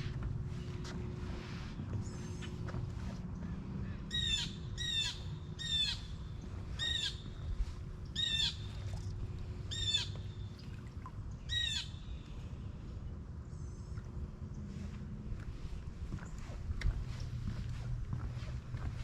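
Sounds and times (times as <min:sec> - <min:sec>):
bird calling: 0:03.4 - 0:10.6, 0:11.4 - 0:12.4.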